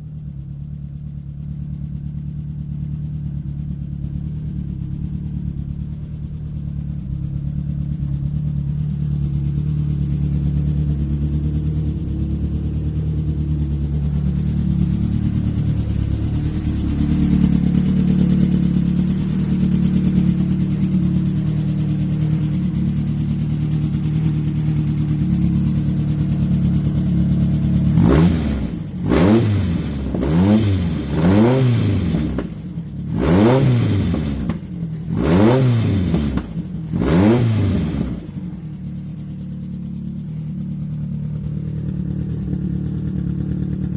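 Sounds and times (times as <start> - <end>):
car engine running: 0.0 - 43.9
engine revving with throttle blips: 11.1 - 38.8.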